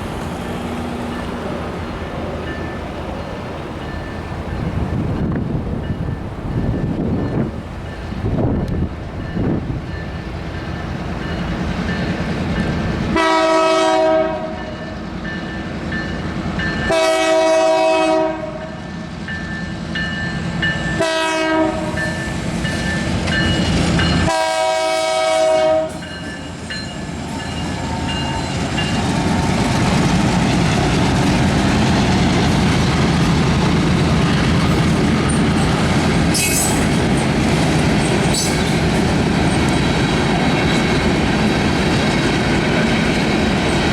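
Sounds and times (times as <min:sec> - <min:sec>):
train wheel and rail noise: 0:00.0 - 0:43.9
train horn: 0:13.1 - 0:14.9, 0:16.8 - 0:18.8, 0:21.0 - 0:22.3, 0:24.2 - 0:26.1.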